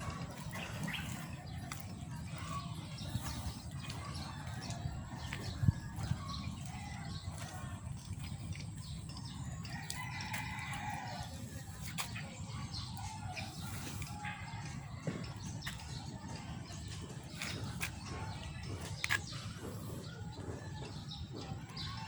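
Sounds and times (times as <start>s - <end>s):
steady low rumble: 0.0s - 9.7s.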